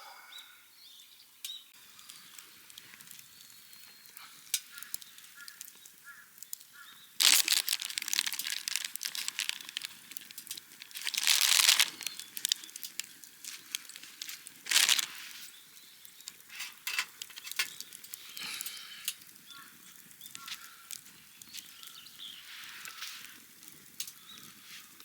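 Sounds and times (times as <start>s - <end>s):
material crinkling and rustling: 7.2s - 15.6s.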